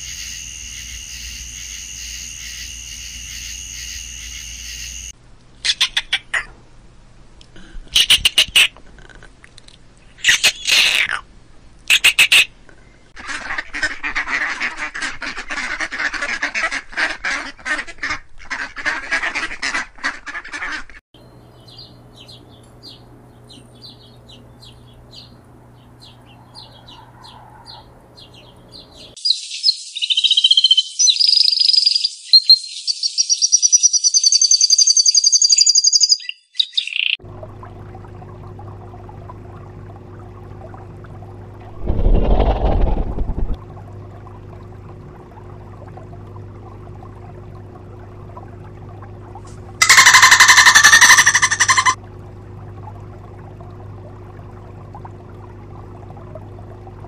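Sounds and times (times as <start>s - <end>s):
birds chattering: 21.4s - 32.0s, 49.8s - 52.0s
bird warbling song with trills: 21.4s - 37.2s, 49.8s - 52.0s
thin high bird peeps: 29.2s - 37.2s, 49.8s - 52.0s.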